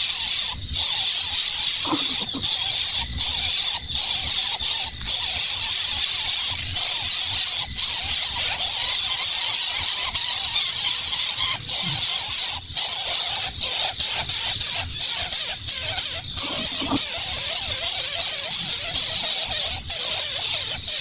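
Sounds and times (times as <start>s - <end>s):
animal squealing calls: 1.6s - 4.8s, 10.1s - 21.0s.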